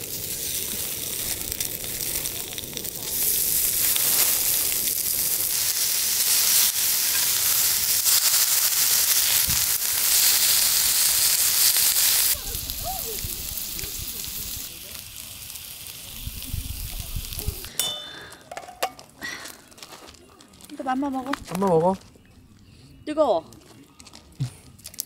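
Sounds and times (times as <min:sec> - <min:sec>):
food frying in hot oil: 0:00.0 - 0:17.7.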